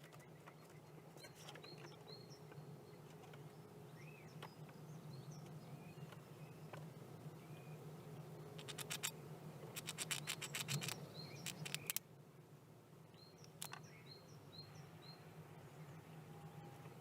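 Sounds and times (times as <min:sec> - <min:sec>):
low steady hum: 0:00.0 - 0:17.0
squirrel clicks and scratches: 0:08.6 - 0:09.1, 0:09.7 - 0:12.0, 0:13.4 - 0:13.8
small bird calling: 0:09.8 - 0:12.0.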